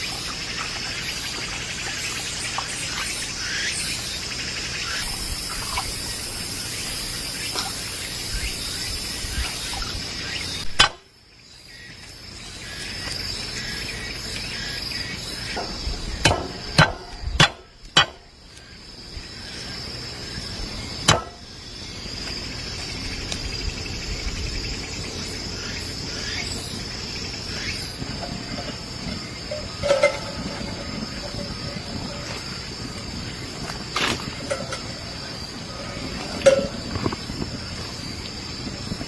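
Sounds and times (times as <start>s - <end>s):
insects trilling: 0.0s - 39.0s
sharp knocks: 10.8s - 11.0s, 15.5s - 18.2s, 21.1s - 21.4s.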